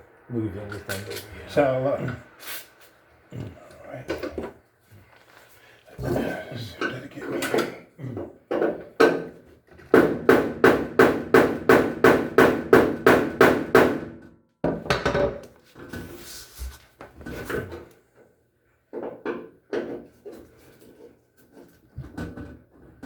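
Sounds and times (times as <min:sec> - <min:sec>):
quiet knocks and clatter: 0:06.0 - 0:10.0, 0:16.9 - 0:23.0.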